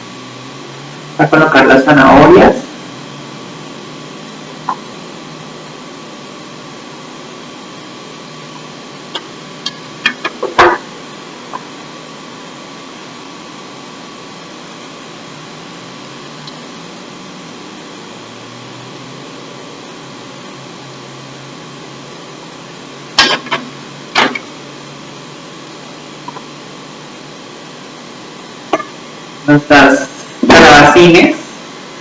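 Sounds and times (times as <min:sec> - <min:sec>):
fan hum: 0:00.0 - 0:32.0
sharp knocks: 0:10.1 - 0:10.9.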